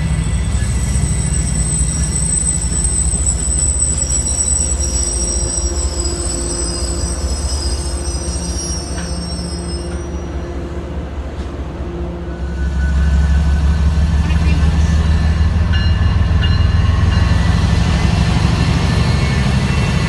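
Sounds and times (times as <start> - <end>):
high wheel squeal: 0.0 - 10.6, 12.3 - 14.1, 16.6 - 20.0
train rumbling along track: 0.0 - 20.0.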